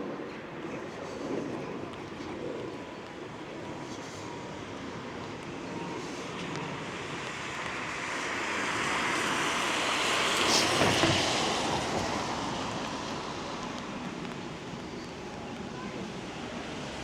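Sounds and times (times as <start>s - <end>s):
car tyres hissing on wet road: 6.0s - 14.6s.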